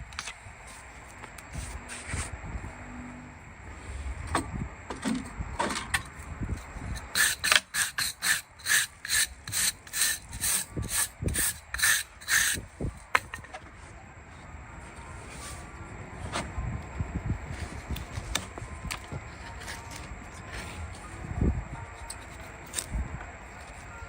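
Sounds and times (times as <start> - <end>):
hand tool scraping hoof: 6.9 - 13.3, 19.3 - 21.1.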